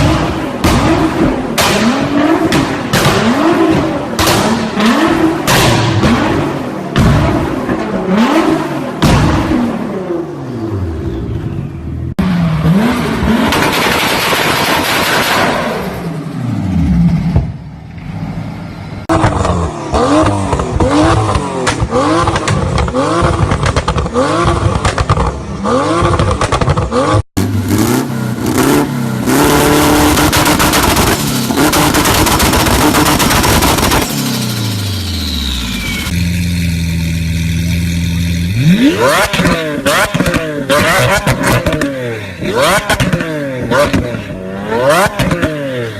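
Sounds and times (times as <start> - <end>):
exhaust backfire pops: 0.0 - 8.0, 9.0 - 9.9, 13.4 - 16.1, 17.2 - 17.7, 19.1 - 25.4, 26.0 - 27.0, 29.8 - 34.9, 38.8 - 44.4, 45.0 - 45.6
car engines revving: 0.0 - 45.9.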